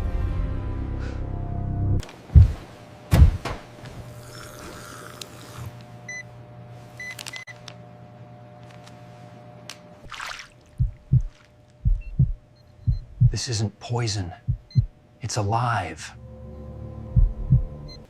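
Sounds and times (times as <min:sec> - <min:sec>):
dramatic score music: 0:00.0 - 0:02.0, 0:16.2 - 0:18.0
low electronic hum: 0:01.6 - 0:04.5, 0:05.2 - 0:18.0
heavy low thuds: 0:02.3 - 0:03.6, 0:10.8 - 0:13.4, 0:14.4 - 0:14.9, 0:17.1 - 0:17.8.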